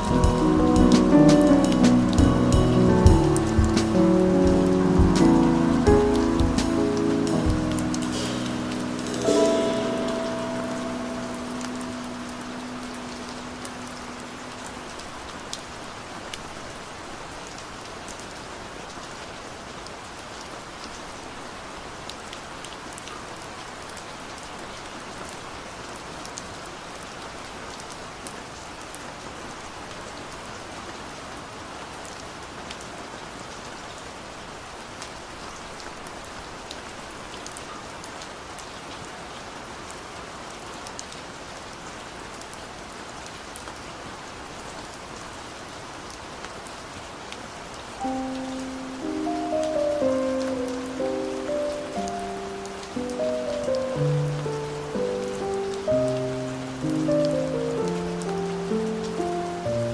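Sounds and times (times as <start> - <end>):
raindrops ticking: 0.0 - 10.4
held musical note: 0.0 - 14.8
rain hissing: 0.0 - 17.2, 43.9 - 59.9.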